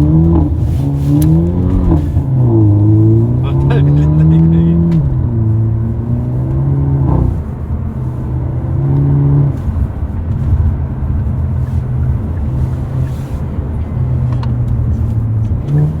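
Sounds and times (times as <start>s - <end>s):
car engine and exhaust: 0.0s - 16.0s.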